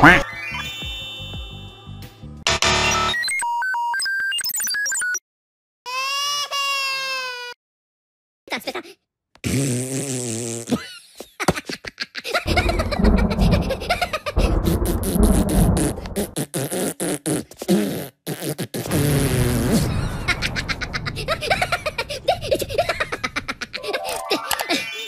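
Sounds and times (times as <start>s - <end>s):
heavy low rumble: 12.5s - 16.4s, 19.3s - 23.8s
crackling electric zapping: 18.9s - 23.6s.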